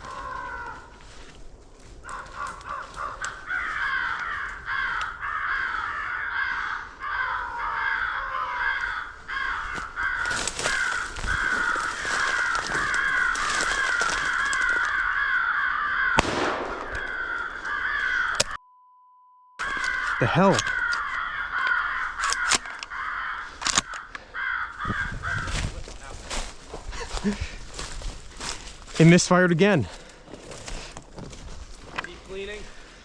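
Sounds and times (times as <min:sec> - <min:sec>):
crows cawing: 0:00.0 - 0:18.6, 0:19.6 - 0:28.8, 0:32.3 - 0:33.0
sharp loud crack: 0:16.2 - 0:17.8.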